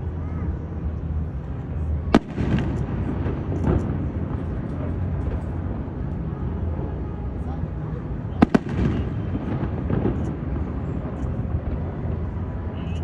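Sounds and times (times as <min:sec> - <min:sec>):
firework crackles: 0:01.4 - 0:13.0
firework bang: 0:02.1 - 0:06.0, 0:08.4 - 0:12.5.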